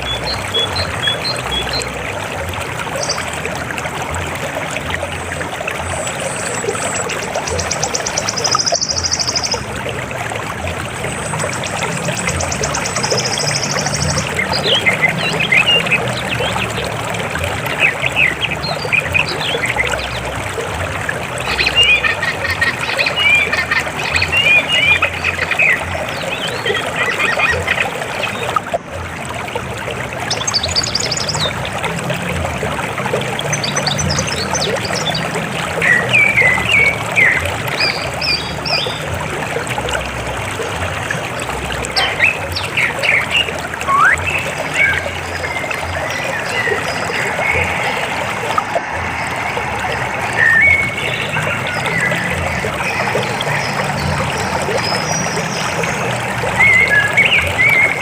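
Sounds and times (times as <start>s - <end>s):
river water flowing: 0.0s - 58.0s
birds chirping: 5.2s - 9.7s, 11.0s - 17.0s, 41.6s - 58.0s.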